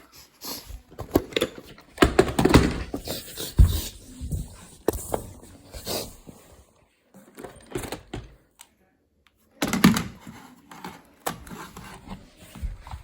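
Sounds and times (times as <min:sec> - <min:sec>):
plastic dustbins clunking and rattling: 0:01.1 - 0:04.5.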